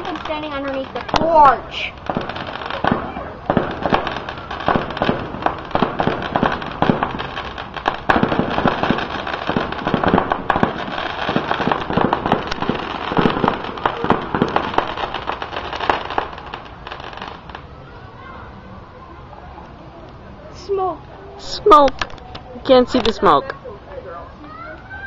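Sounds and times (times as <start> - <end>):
fireworks bangs and crackles: 0.0 - 17.8, 21.4 - 23.5.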